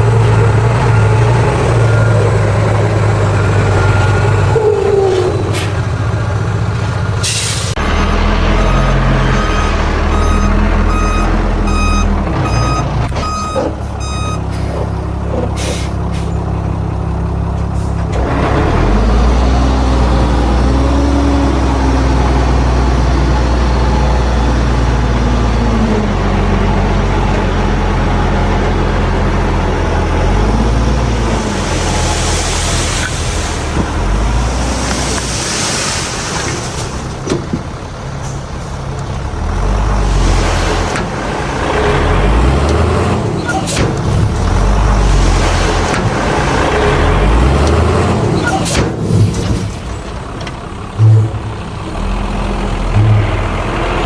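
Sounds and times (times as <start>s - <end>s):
diesel engine running hard: 0.0s - 54.0s
reversing alarm beeping: 8.5s - 14.5s.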